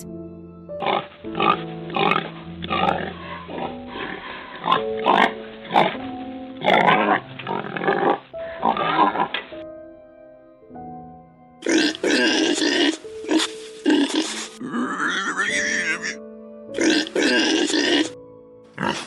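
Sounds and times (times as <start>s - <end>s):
background music with held notes: 0.0s - 19.0s
pig grunting: 0.8s - 6.0s, 6.6s - 9.6s, 11.6s - 16.2s, 16.8s - 18.2s, 18.8s - 19.0s.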